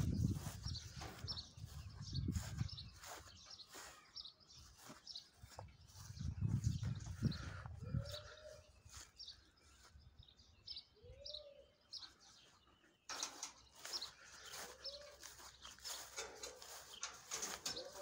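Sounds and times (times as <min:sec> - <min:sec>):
high bird chirps: 0:00.0 - 0:09.0, 0:10.8 - 0:18.0
low bird coos: 0:11.0 - 0:11.8, 0:14.5 - 0:15.5, 0:17.3 - 0:18.0.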